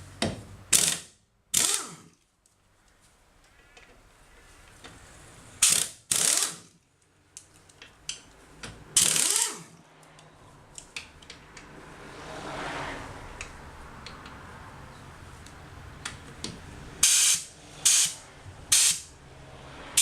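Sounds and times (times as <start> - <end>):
mechanical ratcheting: 0.7 - 2.1, 5.6 - 6.7, 9.0 - 9.8
soft rushing noise: 9.8 - 16.0.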